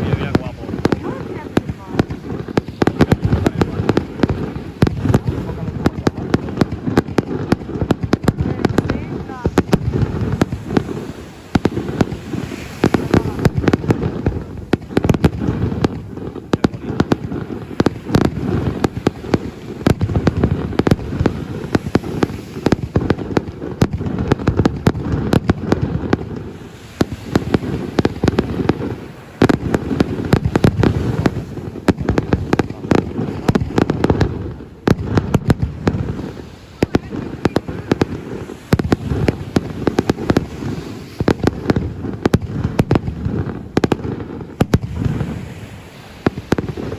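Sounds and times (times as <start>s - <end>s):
fireworks bursts and booms: 0.0s - 46.9s.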